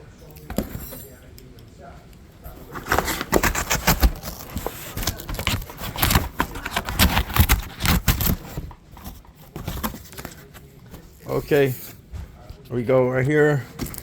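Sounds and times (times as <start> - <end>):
cardboard box being opened: 2.6 - 11.7.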